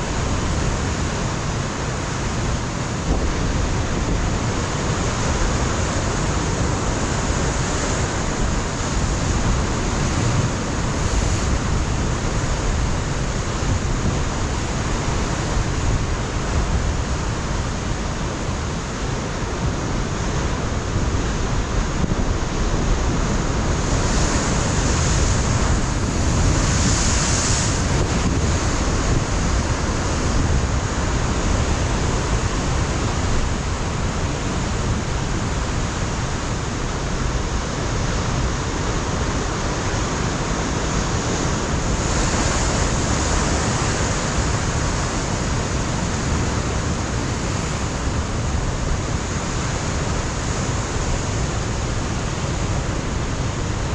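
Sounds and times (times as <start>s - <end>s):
wind buffeting microphone: 19.2s - 53.9s.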